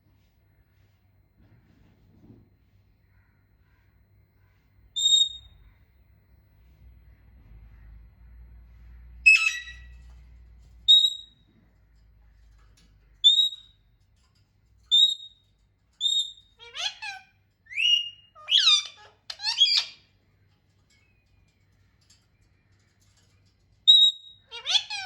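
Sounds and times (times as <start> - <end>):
parrot whistling: 9.3 - 9.9, 17.7 - 20.0.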